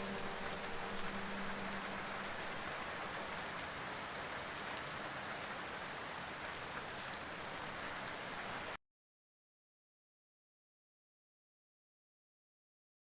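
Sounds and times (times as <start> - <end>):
held music tone: 0.0 - 3.5
steady rainfall: 0.0 - 8.8.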